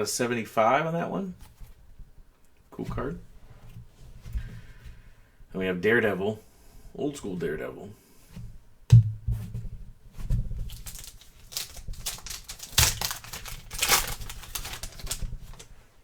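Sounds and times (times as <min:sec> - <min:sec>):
soft thump: 0:08.4 - 0:10.5
foil wrapper crinkling: 0:10.6 - 0:15.8.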